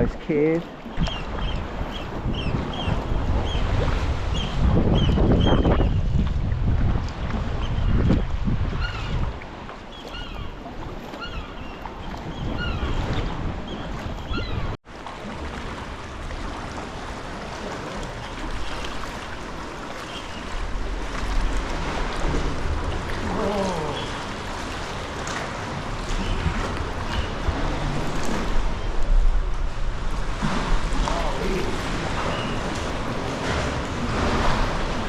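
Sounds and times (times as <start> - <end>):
sea water sloshing: 0.0 - 35.0
wind buffeting microphone: 0.9 - 9.6, 16.0 - 35.0.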